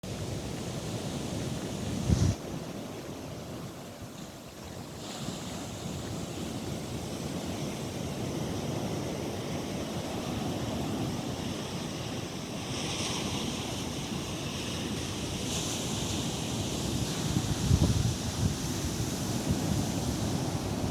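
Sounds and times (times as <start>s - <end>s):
ocean surf on beach: 0.0s - 20.9s
wind noise on microphone: 0.0s - 20.9s.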